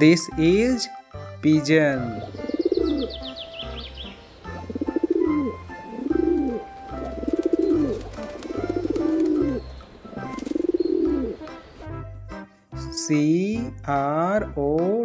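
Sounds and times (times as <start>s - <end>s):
soft background music: 0.0s - 15.0s
pigeon cooing: 2.2s - 11.5s.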